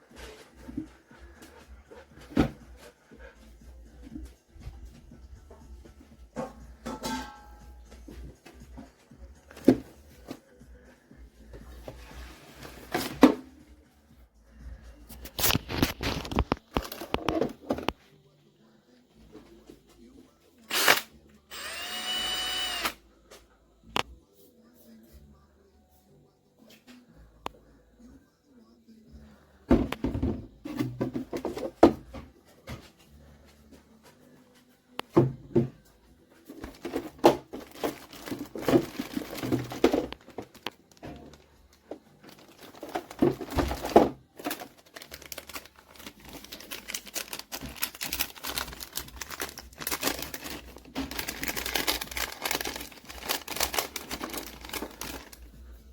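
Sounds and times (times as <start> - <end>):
crinkling and clicking handling: 15.1 - 18.0, 36.5 - 55.6.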